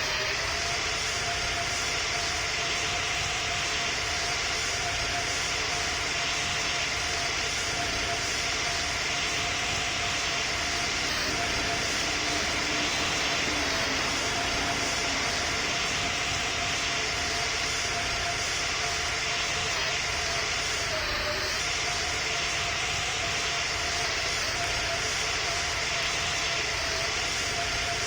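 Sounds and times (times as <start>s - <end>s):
jet engines roaring: 0.8s - 20.9s
faint constant hum: 4.7s - 20.2s.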